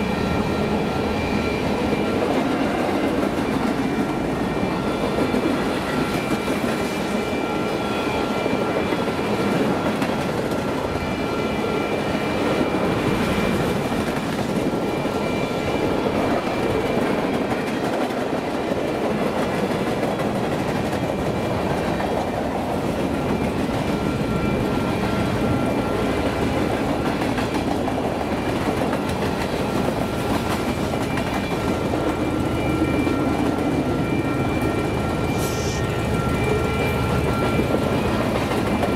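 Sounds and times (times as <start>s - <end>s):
freight train cars rumbling: 0.0s - 38.9s
thin high ringing tones: 29.0s - 38.9s.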